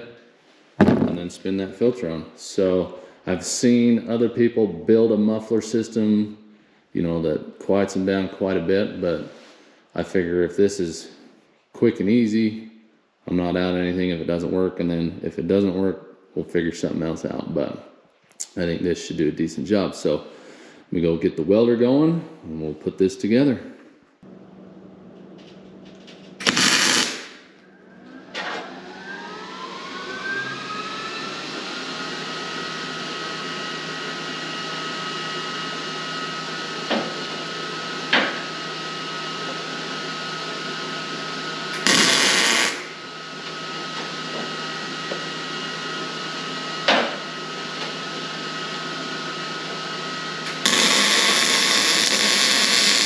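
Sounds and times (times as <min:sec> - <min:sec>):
loud hissing bursts: 0:26.4 - 0:27.5, 0:41.7 - 0:43.0, 0:50.4 - 0:53.0
power tool motor whining: 0:26.4 - 0:39.6, 0:41.7 - 0:53.0.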